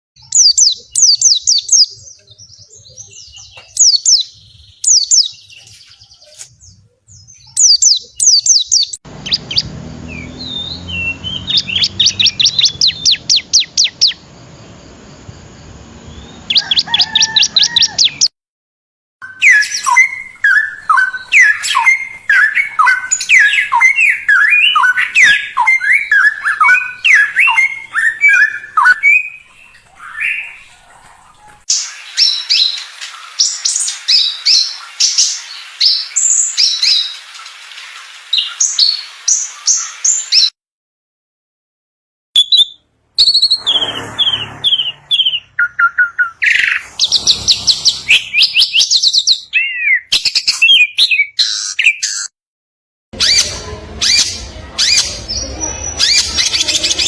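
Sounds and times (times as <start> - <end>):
songbirds singing: 0.2 - 18.3, 19.2 - 40.5, 42.4 - 52.3
birds chattering: 19.2 - 40.0, 43.2 - 50.0, 53.2 - 57.0.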